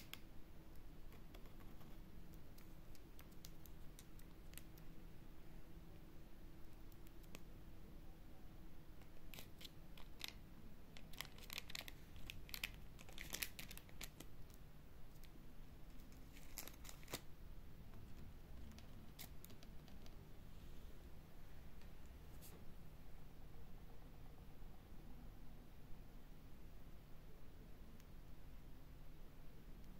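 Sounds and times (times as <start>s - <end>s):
crinkly snips: 0.0s - 4.9s, 9.0s - 17.3s, 18.6s - 20.2s
low room hum: 0.0s - 29.9s.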